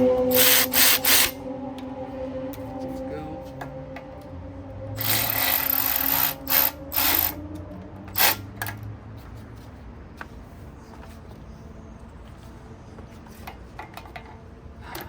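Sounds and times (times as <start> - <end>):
power tool driving bolts: 0.3 - 1.4, 5.0 - 7.4, 8.1 - 8.8.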